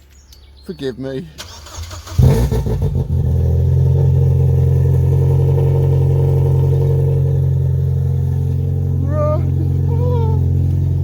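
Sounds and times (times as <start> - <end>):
car engine idling loudly: 3.0 - 11.0.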